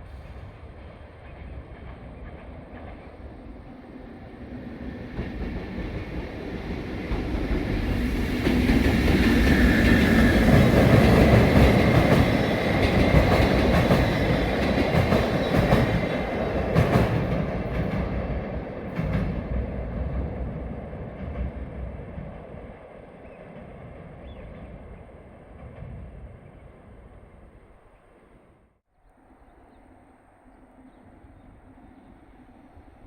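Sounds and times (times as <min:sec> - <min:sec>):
train passing: 0:00.0 - 0:33.0
rail-joint clacks: 0:18.9 - 0:20.3.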